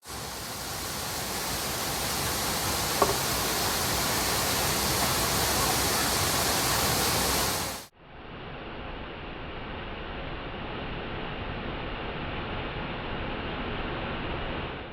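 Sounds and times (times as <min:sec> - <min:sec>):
waterfall rushing: 0:00.0 - 0:07.9.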